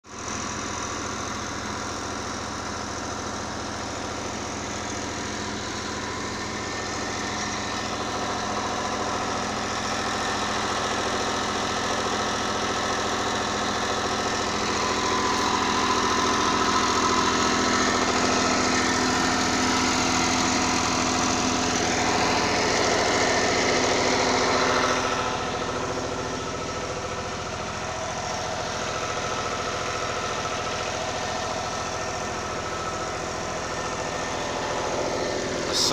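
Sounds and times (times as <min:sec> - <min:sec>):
diesel generator running: 0:00.0 - 0:35.9.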